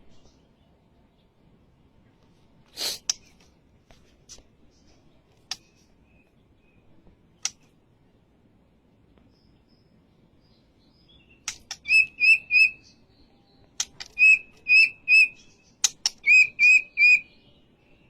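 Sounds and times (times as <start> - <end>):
bird harsh rasp: 2.7 - 3.4
bird clicking calls: 5.4 - 5.8, 11.4 - 12.7, 13.7 - 17.2.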